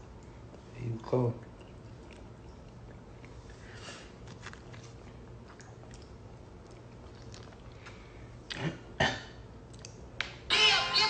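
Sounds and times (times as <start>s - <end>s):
crunchy food chewing: 1.6s - 8.6s.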